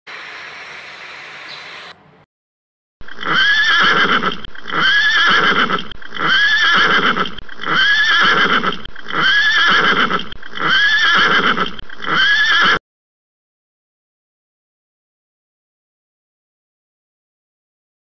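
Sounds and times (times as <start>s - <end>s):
horse whinnying: 3.1s - 12.8s.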